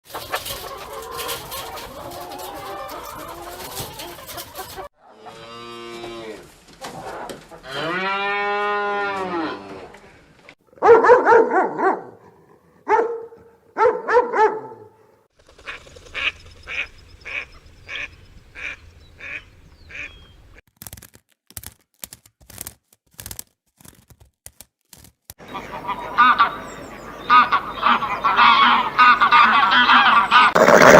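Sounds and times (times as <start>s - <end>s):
cow mooing: 7.6s - 9.9s.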